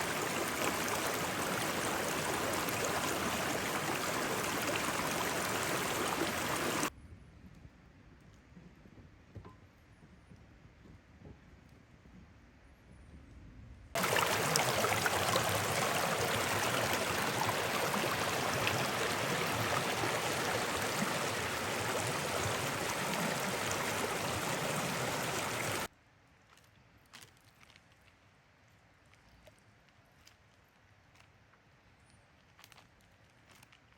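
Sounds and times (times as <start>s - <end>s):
mountain river rushing: 0.0s - 6.9s, 14.0s - 25.9s.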